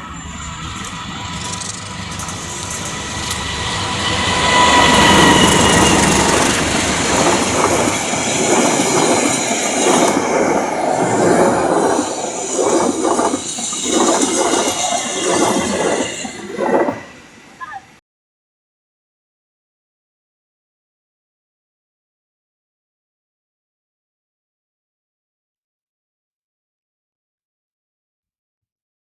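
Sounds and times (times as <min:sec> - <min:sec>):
wheels clattering over rail joints: 0:00.0 - 0:17.9
faint squealing tones: 0:00.0 - 0:18.0
train passing close by: 0:00.0 - 0:18.0.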